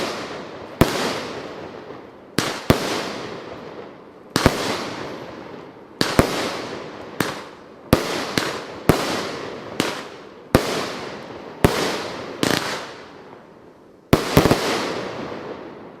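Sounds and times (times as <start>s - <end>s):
firework bangs with echo: 0.0s - 13.4s, 14.1s - 16.0s.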